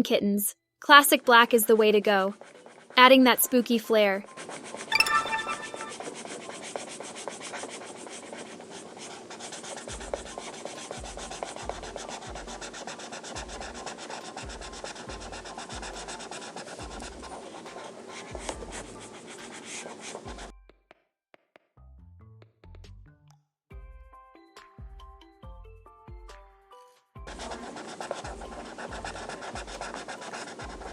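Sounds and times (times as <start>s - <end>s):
colouring tool scratching on paper: 1.5s - 4.9s, 5.9s - 20.5s, 27.3s - 30.9s.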